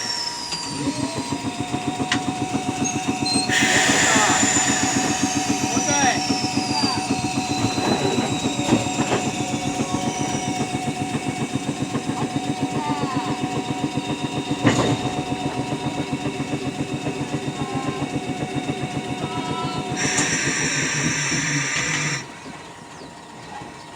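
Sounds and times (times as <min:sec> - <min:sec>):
short wheel squeal: 0:00.0 - 0:01.4, 0:02.8 - 0:10.7, 0:19.4 - 0:23.1
electric railcar chugging: 0:00.0 - 0:23.9
steady motor whine: 0:00.0 - 0:23.9.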